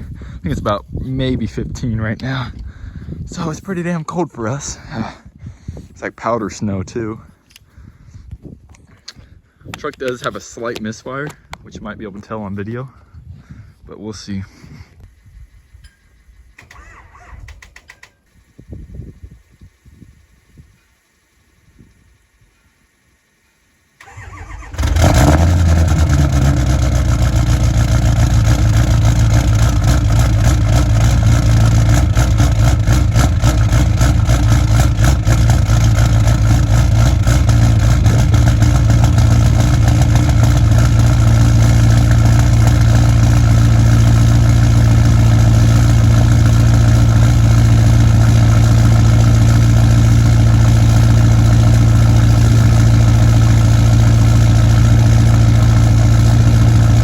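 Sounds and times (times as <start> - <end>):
diesel truck engine idling: 24.1 - 57.0.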